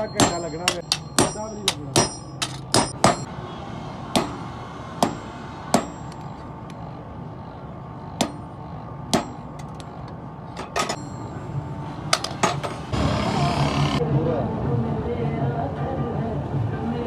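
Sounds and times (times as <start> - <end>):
hammer striking steel on anvil: 0.0 - 3.3, 4.1 - 4.4, 5.0 - 6.2, 8.2 - 8.5, 9.1 - 9.8.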